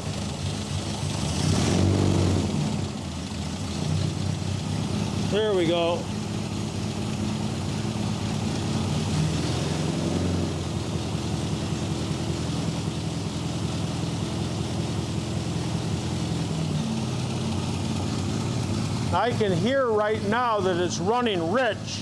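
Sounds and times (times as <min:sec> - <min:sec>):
car engine idling without muffler: 0:00.0 - 0:01.6, 0:02.3 - 0:22.0.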